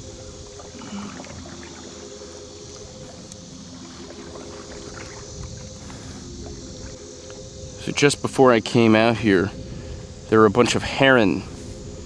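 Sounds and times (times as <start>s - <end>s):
paddle splashes and drips: 0.0s - 8.4s
low steady hum: 0.0s - 12.0s
steady high hiss: 0.0s - 12.0s.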